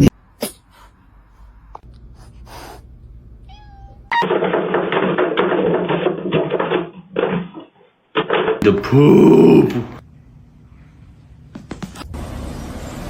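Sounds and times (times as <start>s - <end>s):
cat meowing: 3.4s - 4.3s
noisy knocking: 4.3s - 7.6s.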